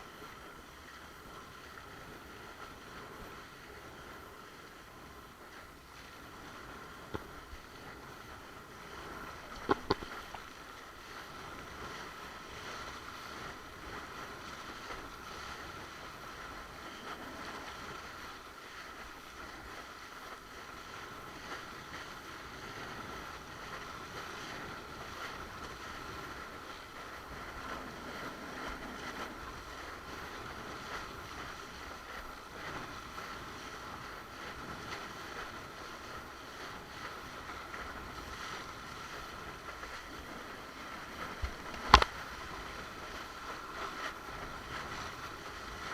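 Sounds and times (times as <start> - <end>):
water rushing along board: 0.0 - 45.9
wind on microphone: 0.0 - 45.9.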